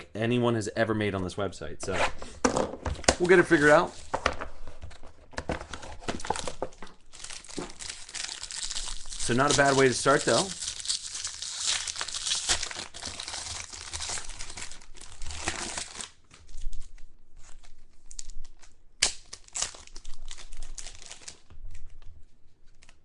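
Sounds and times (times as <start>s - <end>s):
wrapper crinkling and tearing: 6.2s - 22.0s.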